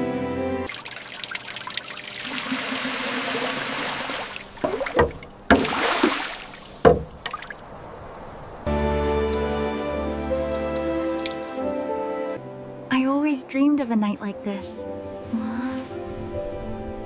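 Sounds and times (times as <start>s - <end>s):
water pouring and trickling: 0.7s - 11.7s
sudden splashes or knocks: 3.9s - 7.7s.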